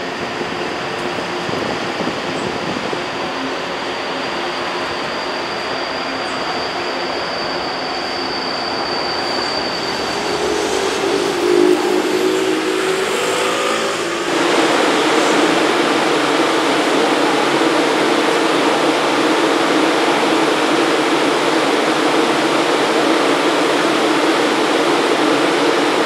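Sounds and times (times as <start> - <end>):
train wheel and car rush: 0.0 - 26.0
electric motor whine: 0.1 - 19.7.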